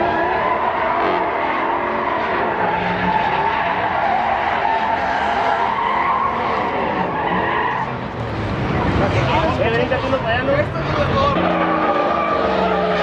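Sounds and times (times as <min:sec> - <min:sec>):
truck engine revving: 0:00.1 - 0:12.9
tyres squealing: 0:02.8 - 0:11.5.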